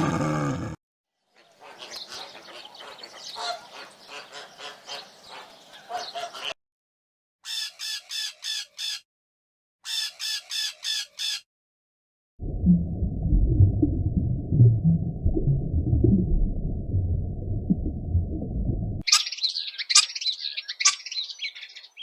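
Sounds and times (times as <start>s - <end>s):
quick repeated bird calls: 7.4s - 9.0s, 9.8s - 11.5s, 19.1s - 22.0s
flock of birds chattering: 19.1s - 22.0s.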